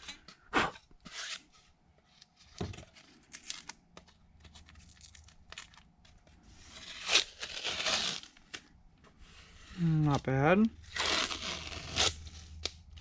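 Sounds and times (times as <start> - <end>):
plastic crinkling and scraping: 1.0 - 9.1.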